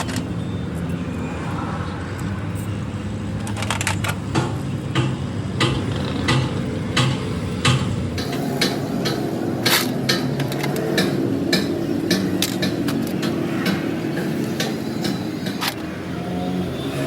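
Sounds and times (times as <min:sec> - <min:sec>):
sharp knocks: 0:04.3 - 0:15.8.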